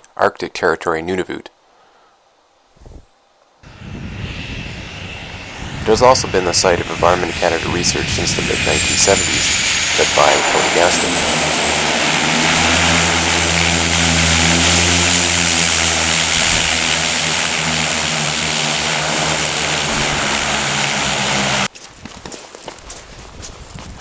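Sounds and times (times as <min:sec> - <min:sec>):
propeller aircraft engine droning: 0:03.6 - 0:21.7.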